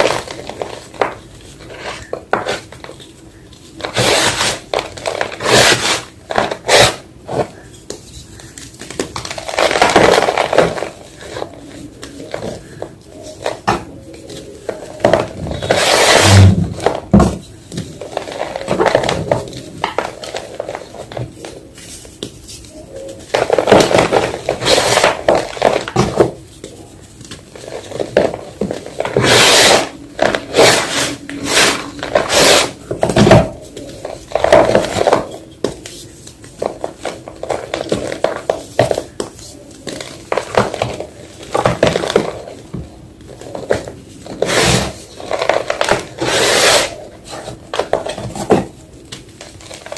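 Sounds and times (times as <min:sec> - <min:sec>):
chalk crunching and crumbling: 0:43.4 - 0:48.4.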